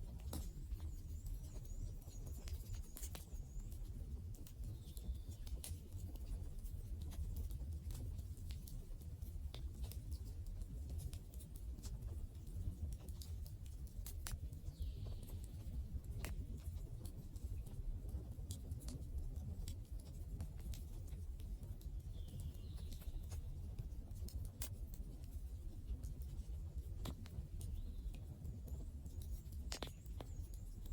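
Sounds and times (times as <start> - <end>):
low rumble of flames: 0.0 - 30.9
wood fire crackling and popping: 11.8 - 30.9.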